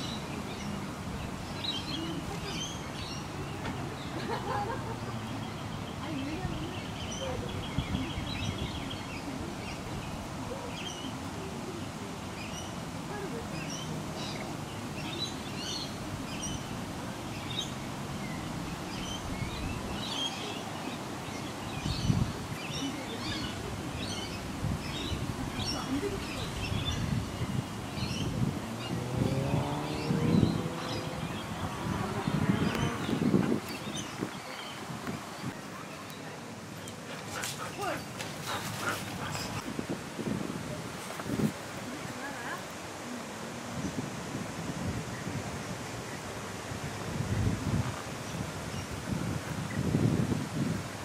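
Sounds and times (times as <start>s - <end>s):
small birds chirping: 0.0s - 39.7s.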